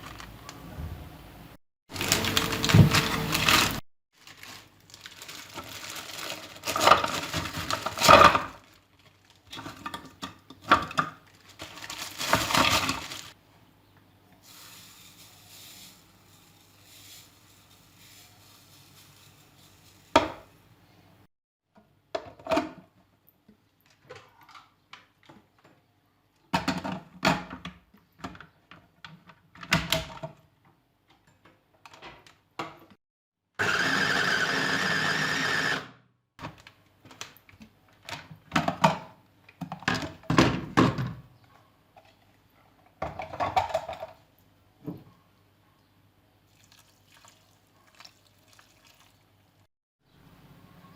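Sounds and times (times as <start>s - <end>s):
kitchen items knocking and clattering: 1.9s - 4.6s, 5.2s - 8.8s, 9.4s - 13.4s, 18.2s - 20.5s, 22.1s - 23.0s, 26.5s - 30.5s, 36.4s - 45.2s.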